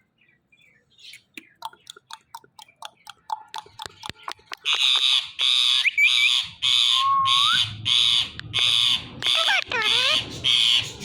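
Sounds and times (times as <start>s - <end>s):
parrot clicking chatter: 1.4s - 5.4s, 8.2s - 11.0s
parrot screeching: 5.0s - 10.9s
parrot rising whistle: 6.9s - 7.8s.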